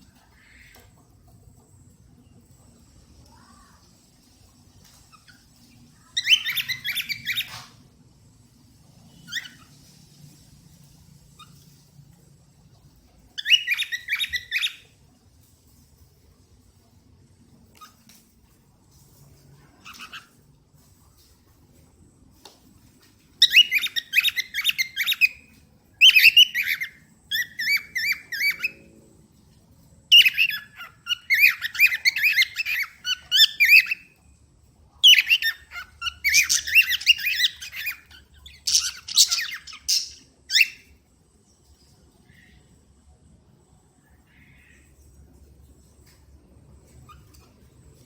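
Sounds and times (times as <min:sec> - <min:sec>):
cockatiel chirping and warbling: 0:04.9 - 0:07.8, 0:09.2 - 0:09.8, 0:11.4 - 0:11.8, 0:13.4 - 0:15.0, 0:17.8 - 0:18.0, 0:19.8 - 0:20.4, 0:23.4 - 0:28.9, 0:30.1 - 0:34.2, 0:35.0 - 0:40.9.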